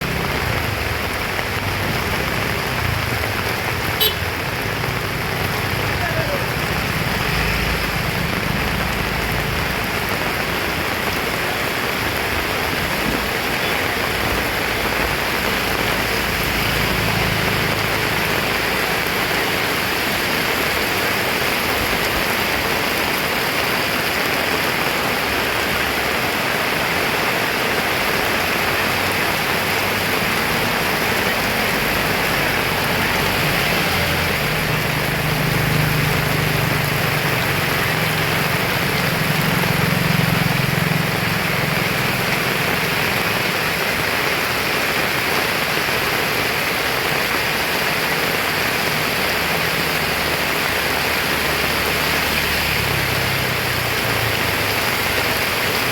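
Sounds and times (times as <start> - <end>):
heavy rain pouring: 0.0 - 55.9.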